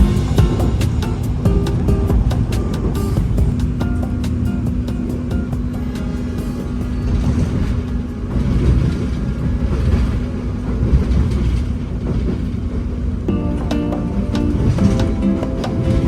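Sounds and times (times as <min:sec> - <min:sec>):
background music: 0:00.0 - 0:08.2, 0:13.3 - 0:16.0
train wheels rumbling: 0:00.0 - 0:16.0.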